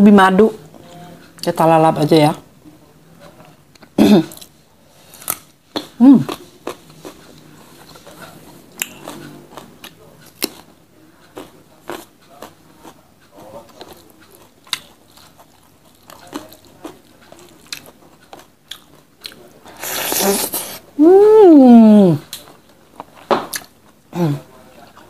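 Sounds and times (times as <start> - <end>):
wet chewing mouth sounds: 5.3 - 20.8.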